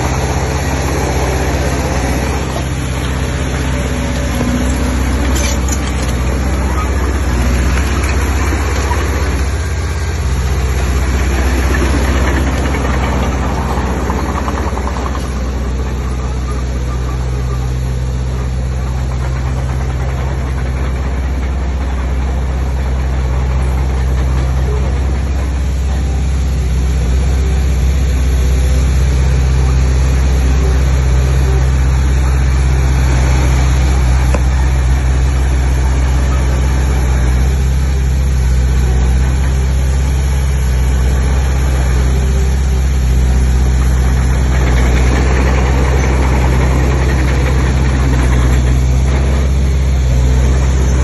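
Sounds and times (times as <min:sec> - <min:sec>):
heavy diesel engine droning: 0:00.0 - 0:51.0.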